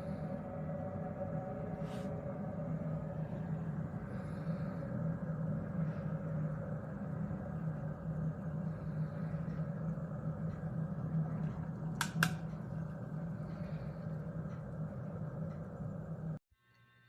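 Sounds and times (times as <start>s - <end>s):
steady low hum: 0.0s - 17.0s
sharp clicks: 11.8s - 12.6s.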